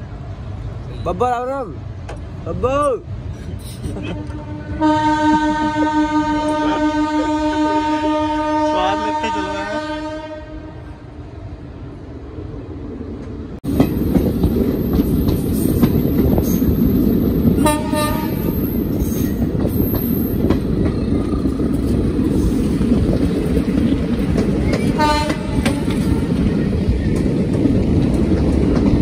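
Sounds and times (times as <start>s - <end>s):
train wheels rumbling on rails: 0.0s - 29.0s
train horn toot: 4.0s - 11.0s, 17.6s - 18.6s, 25.0s - 26.3s.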